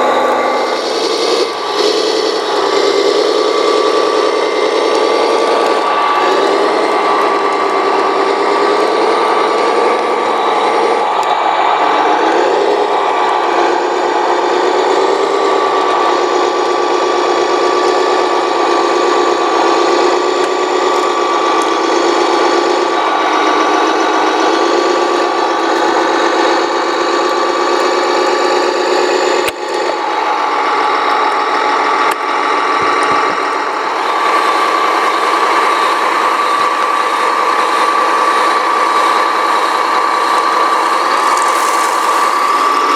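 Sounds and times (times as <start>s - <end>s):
steady high tone: 0.0s - 19.6s
small electric motors whining: 0.0s - 42.9s.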